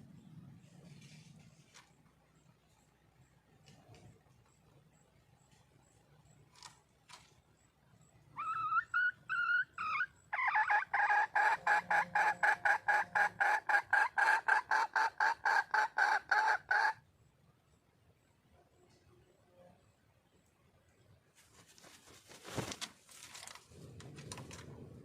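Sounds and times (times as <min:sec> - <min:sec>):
junglefowl hen calling: 0:08.3 - 0:17.1.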